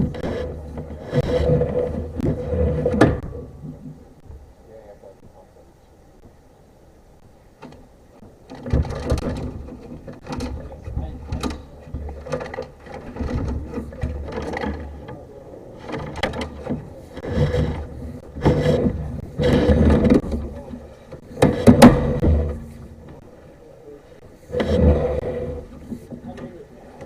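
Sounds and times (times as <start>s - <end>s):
push cable rattling and scraping in drain: 0.0s - 3.2s, 8.5s - 15.2s, 15.8s - 23.2s, 24.5s - 26.6s.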